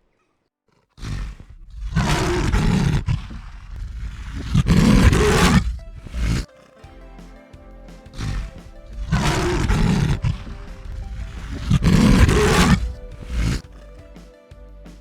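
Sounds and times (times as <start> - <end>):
big cat roaring: 1.0 - 6.5, 8.2 - 13.7
background music: 4.4 - 15.0.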